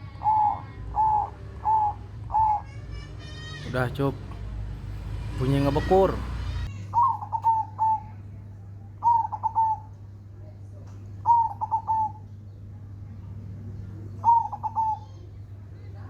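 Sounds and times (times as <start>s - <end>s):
dove cooing: 0.0s - 3.6s, 5.8s - 8.3s, 9.0s - 9.9s, 11.2s - 12.3s, 14.2s - 15.4s
steady low hum: 0.0s - 16.0s.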